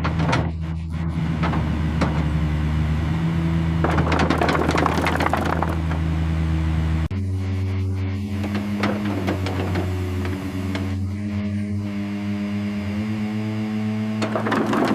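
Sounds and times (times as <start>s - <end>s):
heavy vehicle engine humming: 0.0s - 14.9s
rattling noise: 3.8s - 6.1s, 14.2s - 14.9s.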